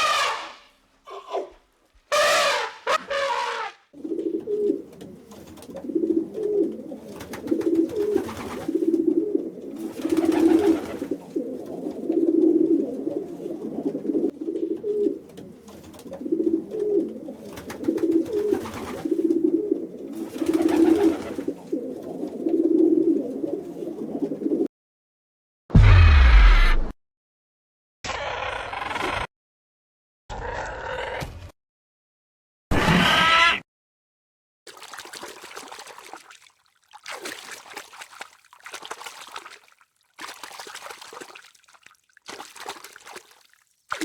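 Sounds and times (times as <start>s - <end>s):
pigeons cooing: 2.4s - 24.7s.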